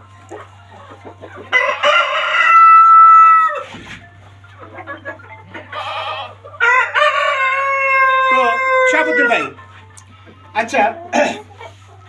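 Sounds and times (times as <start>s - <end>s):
rooster crowing: 1.6s - 3.6s, 6.0s - 9.6s.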